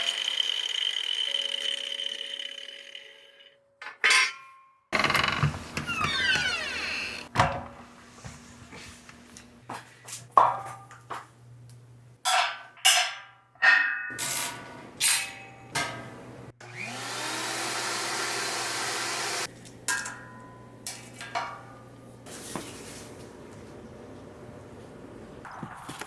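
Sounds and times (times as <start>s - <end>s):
steel bars clanking: 3.8s - 4.6s, 12.3s - 16.2s
electric motor whining: 16.6s - 19.5s.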